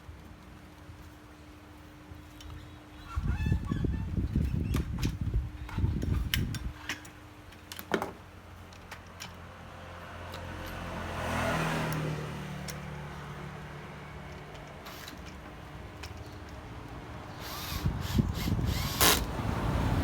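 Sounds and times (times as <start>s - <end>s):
motor vehicle passing: 9.5s - 20.0s.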